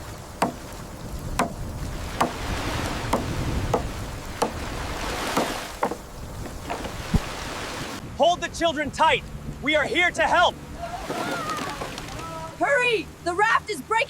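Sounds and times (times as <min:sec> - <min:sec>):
rushing flood water: 0:00.0 - 0:14.0
sharp knocks: 0:00.4 - 0:00.7, 0:01.3 - 0:02.4, 0:03.1 - 0:04.7, 0:05.3 - 0:06.9.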